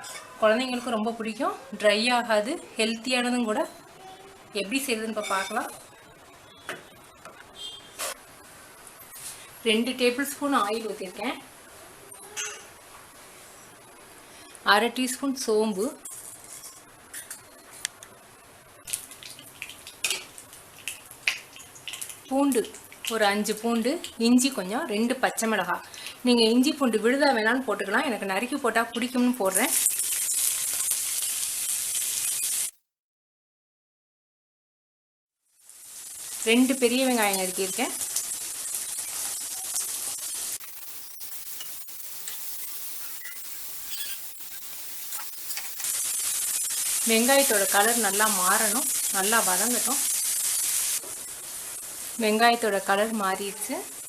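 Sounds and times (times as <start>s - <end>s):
oil sizzling: 4.3s - 32.8s, 35.4s - 54.0s
metal spoon scraping a pan: 16.0s - 17.5s, 38.2s - 47.0s.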